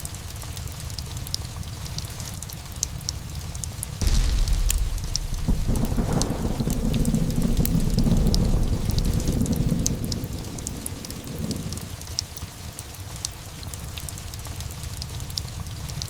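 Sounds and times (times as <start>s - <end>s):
steady rain: 0.0s - 16.0s
thunderclap: 4.0s - 11.9s
thunder rumbling: 4.0s - 12.0s.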